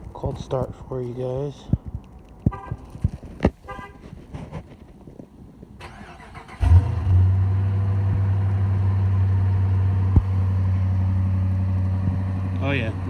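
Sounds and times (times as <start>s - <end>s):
car engine starting and idling: 5.8s - 13.0s.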